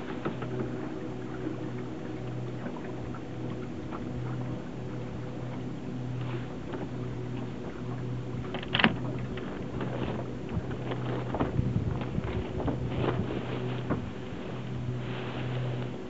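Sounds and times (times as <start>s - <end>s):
sharp knocks on boat: 0.0s - 1.0s, 8.3s - 14.2s
low steady hum: 0.0s - 16.0s.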